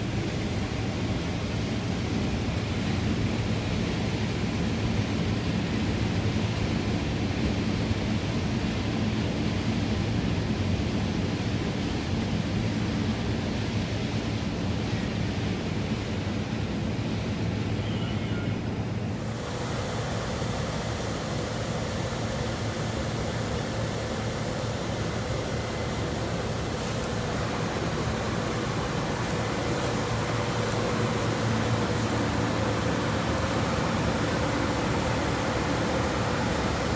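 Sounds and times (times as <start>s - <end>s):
higher steady machine tone: 17.8s - 36.9s
combine harvester droning: 18.2s - 36.9s.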